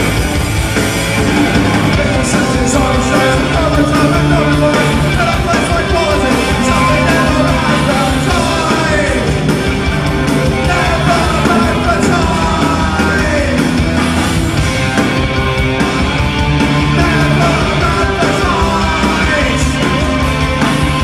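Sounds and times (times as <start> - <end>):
ska-punk band playing: 0.0 - 21.0
half-shouted vocals: 1.6 - 9.5, 10.5 - 13.7, 16.8 - 21.0.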